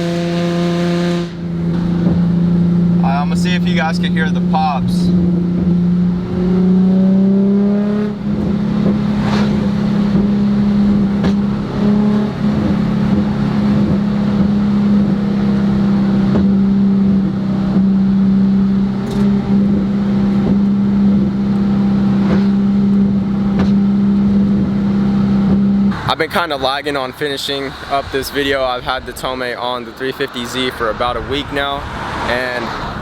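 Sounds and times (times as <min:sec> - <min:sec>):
car engine running: 0:00.0 - 0:28.2
sharp exhaust pops: 0:08.1 - 0:26.4.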